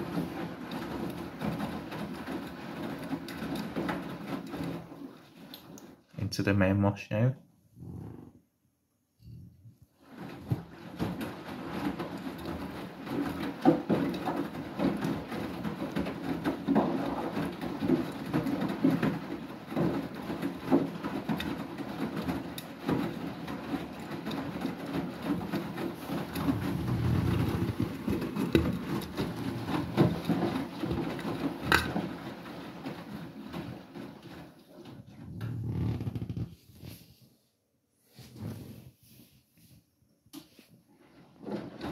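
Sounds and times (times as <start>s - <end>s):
washing machine drum churning: 0.0s - 6.7s, 9.8s - 37.0s, 40.9s - 41.9s
laundry knocking in drum: 10.0s - 36.0s.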